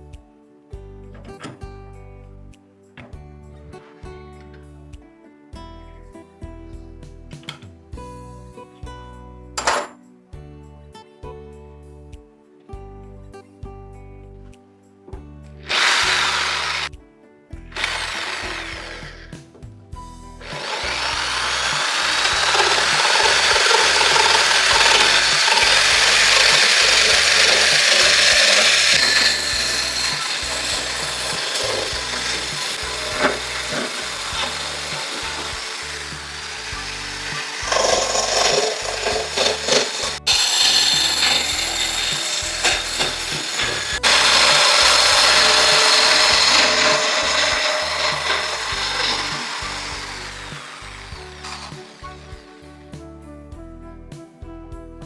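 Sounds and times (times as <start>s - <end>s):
background music with low beat: 0.0s - 15.7s, 16.9s - 55.0s
power saw cutting wood: 15.6s - 16.9s, 17.7s - 52.7s.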